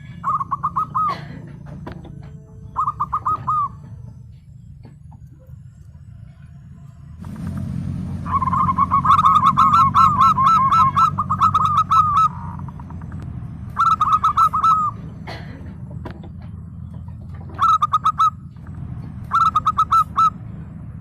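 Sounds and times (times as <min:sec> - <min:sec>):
dove cooing: 0:00.0 - 0:04.3, 0:08.2 - 0:18.6, 0:19.2 - 0:20.4
low steady rumble: 0:00.0 - 0:21.0.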